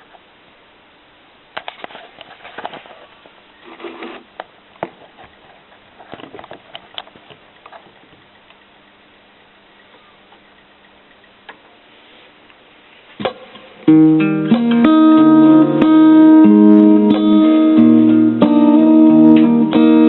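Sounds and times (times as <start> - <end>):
faint steady hum: 0.0 - 20.0
rustling: 1.6 - 8.7, 9.7 - 13.8.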